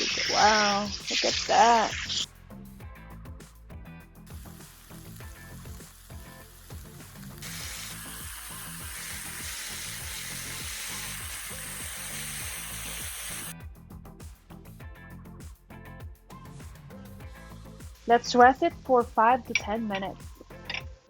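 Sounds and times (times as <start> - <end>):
steak sizzling: 0.0 - 2.3, 4.2 - 13.5
background music: 0.0 - 21.0.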